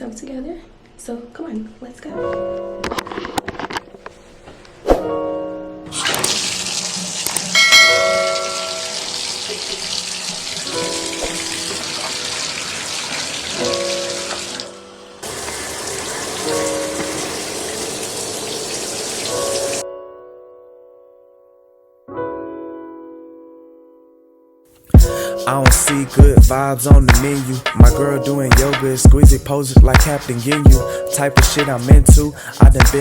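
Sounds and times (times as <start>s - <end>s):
background music: 1.8s - 33.0s
shower water running: 5.9s - 19.8s.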